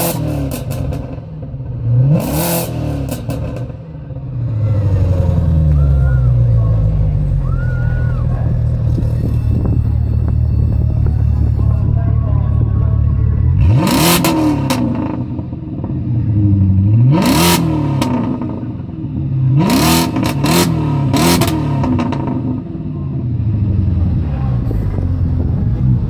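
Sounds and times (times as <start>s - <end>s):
car engine revving: 0.0s - 26.0s
engine idling: 4.0s - 16.6s, 22.7s - 26.0s.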